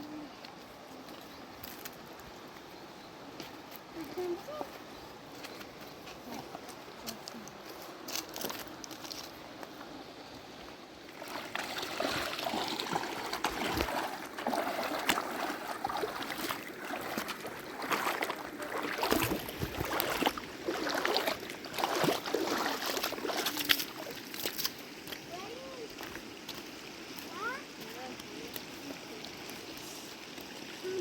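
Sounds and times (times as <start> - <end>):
water sloshing and splashing: 11.0 - 31.0.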